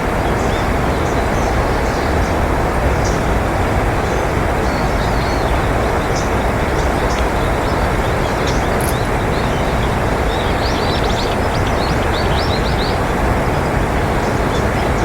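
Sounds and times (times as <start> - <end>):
loud steady rushing noise: 0.0 - 15.0
small birds chirping: 4.1 - 15.0.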